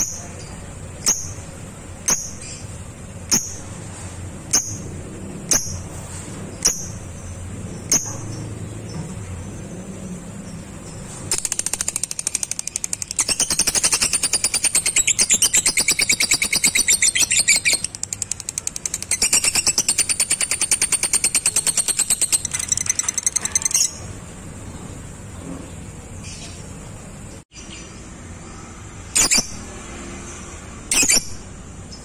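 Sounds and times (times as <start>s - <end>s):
lovebird chattering trill: 10.8s - 24.1s.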